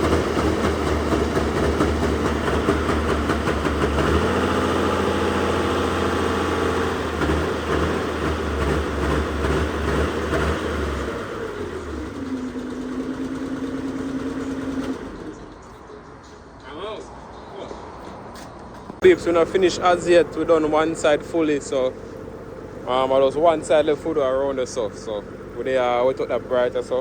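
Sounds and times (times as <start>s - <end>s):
motor humming: 10.8s - 15.6s.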